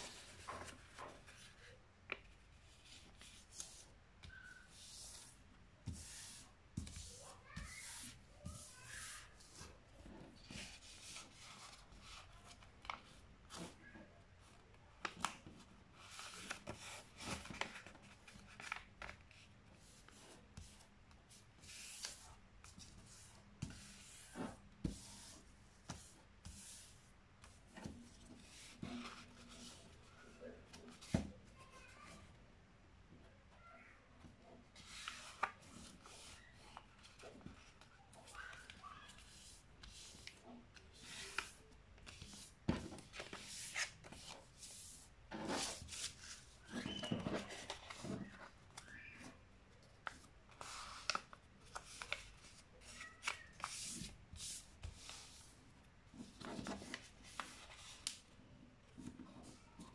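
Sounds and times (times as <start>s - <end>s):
paper rustling and crinkling: 0.0s - 5.2s, 14.4s - 20.4s, 34.7s - 49.3s, 49.9s - 55.4s, 56.2s - 58.2s.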